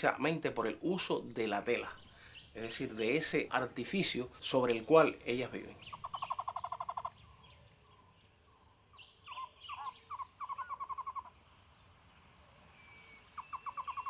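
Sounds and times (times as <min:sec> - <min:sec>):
wild birds calling: 0:01.0 - 0:14.0
rapid bird trill: 0:05.7 - 0:14.0.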